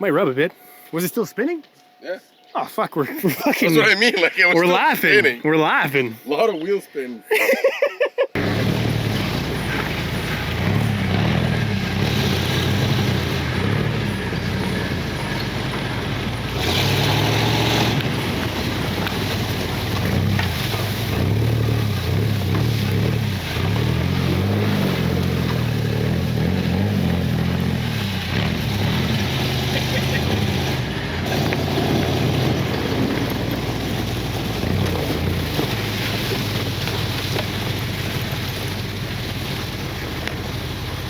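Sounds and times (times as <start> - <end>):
truck engine revving: 8.4 - 41.0.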